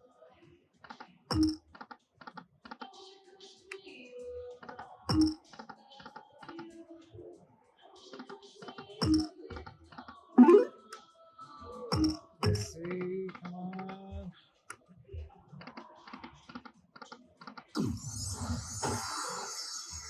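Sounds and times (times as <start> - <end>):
slot machine chime hits: 10.4 - 10.8
warbling game sound: 10.4 - 10.8.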